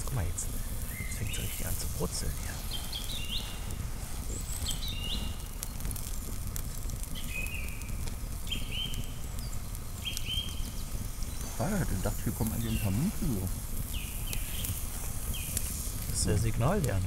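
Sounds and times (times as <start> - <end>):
campfire crackling: 0.0 - 17.0
sausages sizzling: 0.0 - 17.0.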